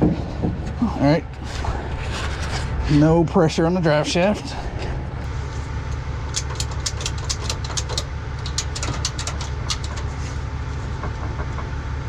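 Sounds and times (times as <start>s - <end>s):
diesel truck engine idling: 0.0s - 12.0s
hand ratchet clicking: 6.3s - 10.0s.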